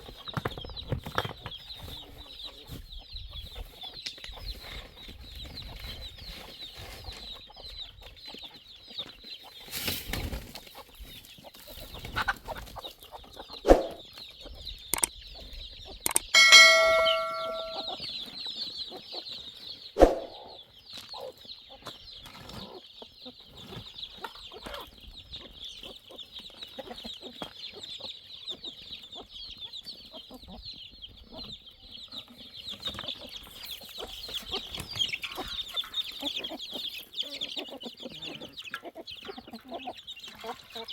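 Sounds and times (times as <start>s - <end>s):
chickens clucking: 0.0s - 17.9s, 18.9s - 40.9s
steady high chirping: 16.1s - 18.0s
metal struck ringing: 16.4s - 18.0s.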